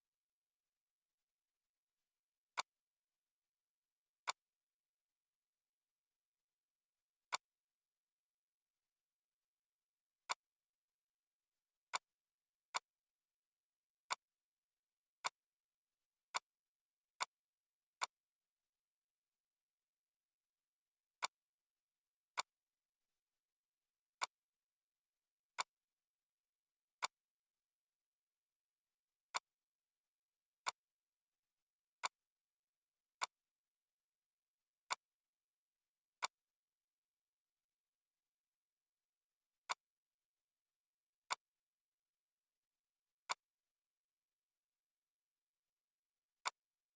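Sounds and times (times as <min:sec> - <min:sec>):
computer mouse clicks: 0:04.2 - 0:04.5.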